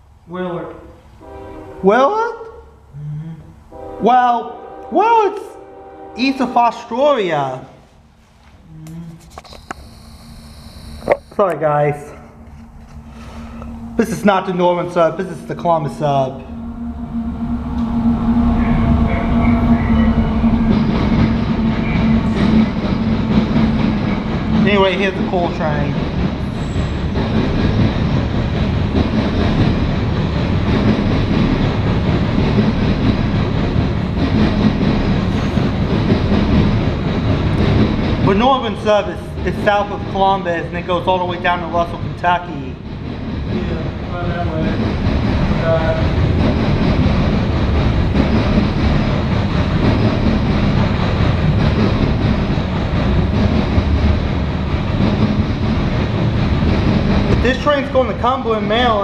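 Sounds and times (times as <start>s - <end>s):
train wheels rolling on rails: 12.1s - 59.0s.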